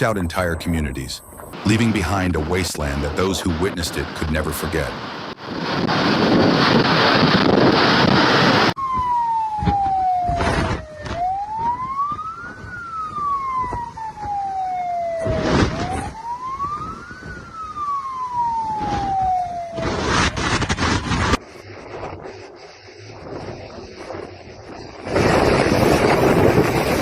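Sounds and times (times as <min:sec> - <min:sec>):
siren wailing: 0:06.9 - 0:21.4
loud rushing noise: 0:18.7 - 0:27.0.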